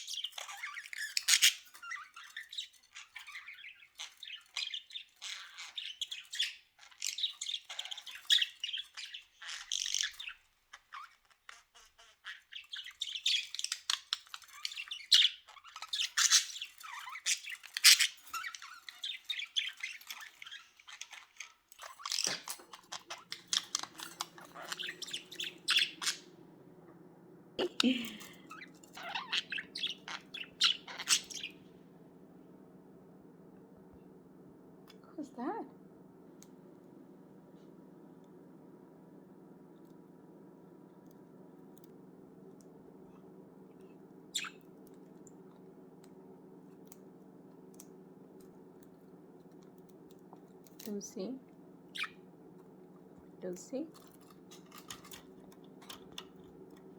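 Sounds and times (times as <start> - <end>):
budgerigars chirping: 0.0 - 26.4, 27.8 - 31.7, 43.8 - 44.9, 51.9 - 52.2
steady low hum: 12.7 - 56.9.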